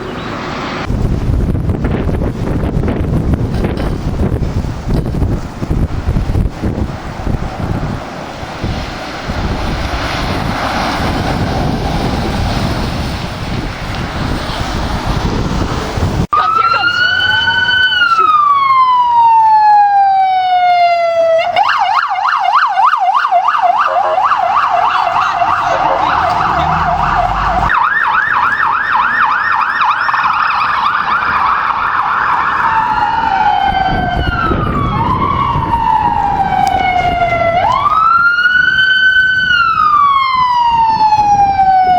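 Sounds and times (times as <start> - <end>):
wind and traffic rumble: 0.0 - 41.9
electronic siren wailing and yelping: 16.4 - 41.9.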